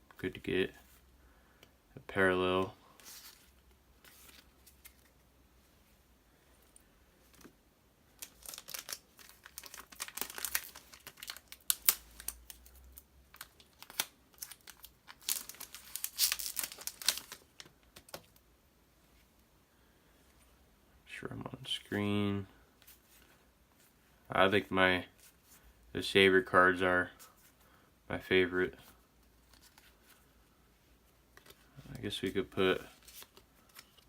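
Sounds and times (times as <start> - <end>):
foil wrapper crinkling: 8.2 - 18.2.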